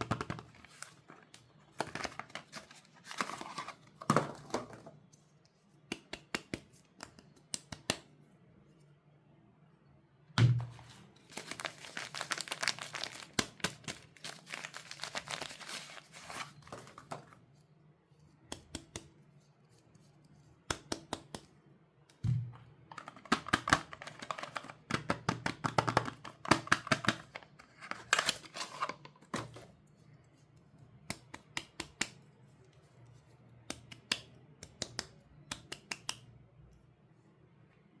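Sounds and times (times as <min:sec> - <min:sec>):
packaging crinkling: 0:11.2 - 0:17.1.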